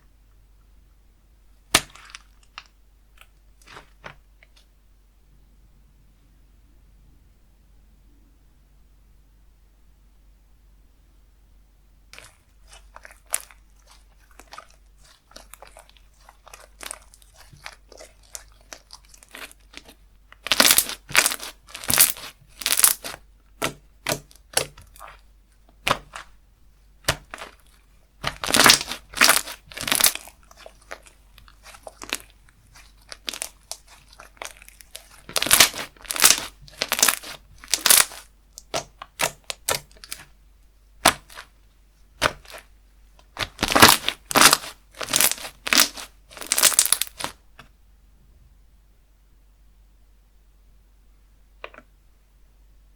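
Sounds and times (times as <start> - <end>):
slime sticky clicks and crackles: 27.0 - 40.3.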